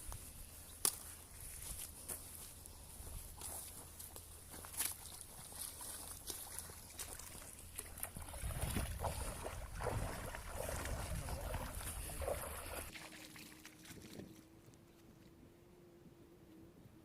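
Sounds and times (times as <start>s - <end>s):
wind buffeting microphone: 8.1s - 12.9s.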